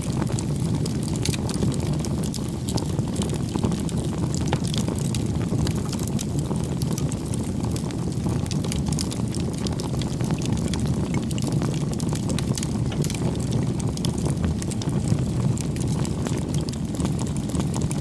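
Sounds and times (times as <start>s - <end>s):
campfire crackling and popping: 0.0s - 18.0s
low rush of flame: 0.0s - 18.0s.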